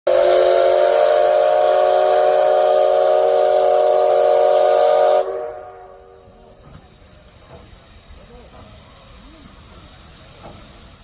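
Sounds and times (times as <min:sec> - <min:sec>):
steam locomotive whistle: 0:00.1 - 0:06.6
steam hiss: 0:00.1 - 0:11.0.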